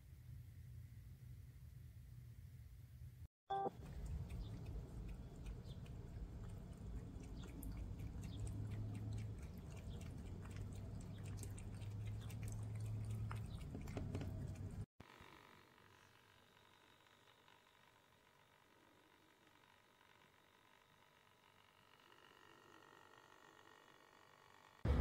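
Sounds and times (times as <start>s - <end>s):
short pitched tone: 3.5s - 3.8s
pet fountain pump hum: 3.5s - 14.9s
cat lapping water: 3.7s - 14.9s.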